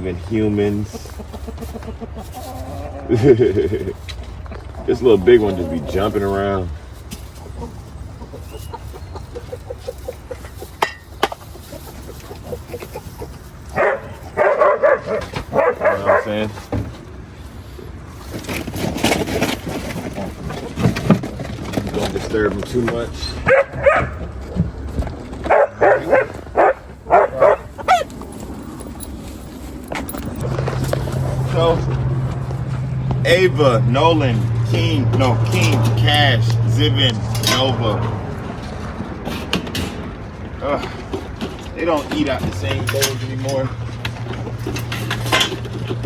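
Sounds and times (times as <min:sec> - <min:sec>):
farm animals calling: 0:00.0 - 0:38.4
dog barking and yipping: 0:11.8 - 0:16.4, 0:23.4 - 0:24.3, 0:25.4 - 0:28.1.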